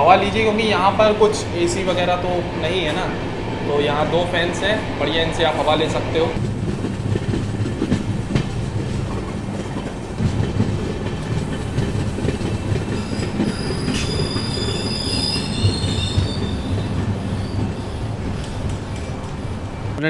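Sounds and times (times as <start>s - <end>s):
train rumbling: 0.0s - 20.0s
wheels clicking over rail joints: 6.4s - 20.0s
brake squeal: 12.9s - 18.6s.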